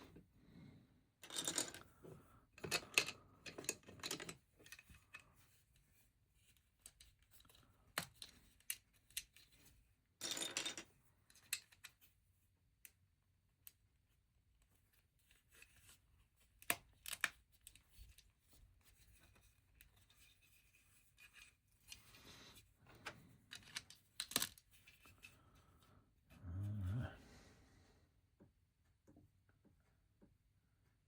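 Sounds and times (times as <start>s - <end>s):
plastic bricks clicking and rattling: 1.2s - 1.9s, 2.6s - 5.2s, 23.0s - 25.3s.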